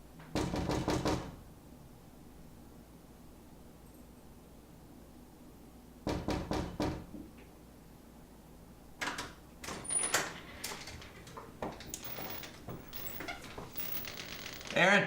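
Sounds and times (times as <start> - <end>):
knocking on wooden door: 0.3 - 1.4, 6.1 - 7.2
door handle and latch rattling: 9.0 - 14.8.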